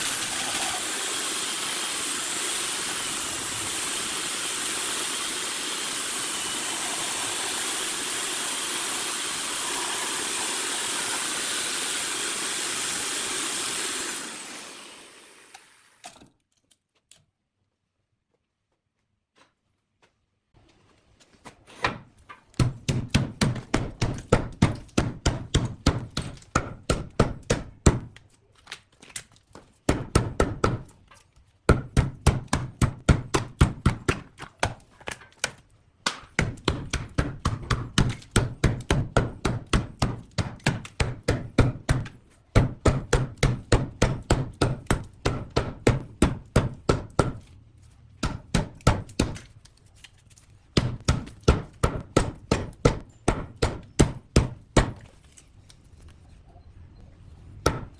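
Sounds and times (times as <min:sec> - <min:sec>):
hand tool striking wood: 0:21.8 - 0:28.2, 0:29.9 - 0:31.0, 0:31.7 - 0:47.6, 0:48.2 - 0:49.5, 0:50.8 - 0:55.2, 0:57.6 - 0:57.9.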